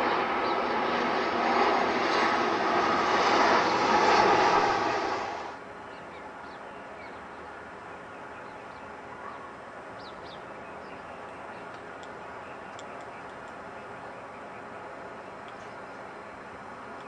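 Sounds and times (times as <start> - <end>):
small birds chirping: 5.8 - 16.3.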